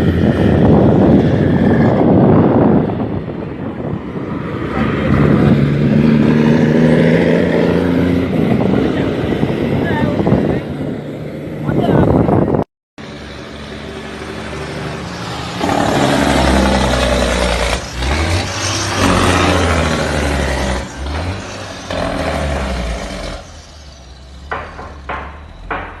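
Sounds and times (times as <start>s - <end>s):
truck diesel engine pulling hard: 0.0s - 26.0s.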